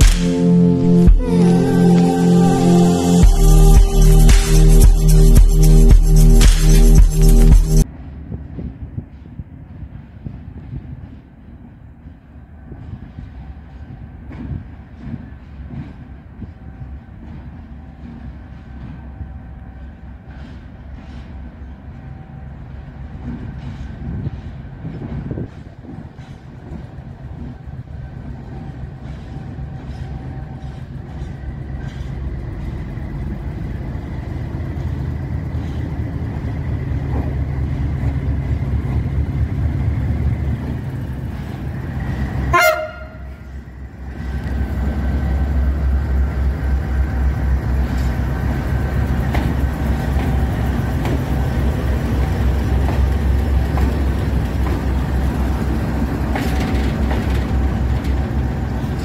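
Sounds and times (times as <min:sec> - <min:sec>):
low train rumble: 0:00.0 - 0:59.0
train wheels clattering: 0:03.2 - 0:59.0
train horn toot: 0:42.5 - 0:43.7.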